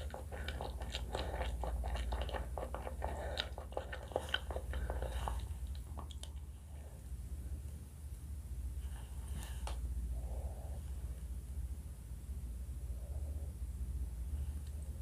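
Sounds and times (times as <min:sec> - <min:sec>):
chewing and biting food: 0:00.0 - 0:06.5
steady low hum: 0:00.0 - 0:15.0.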